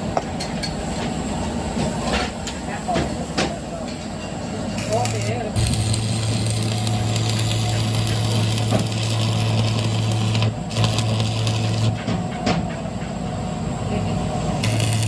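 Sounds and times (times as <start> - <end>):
machine humming: 4.6 - 12.3, 13.5 - 15.0.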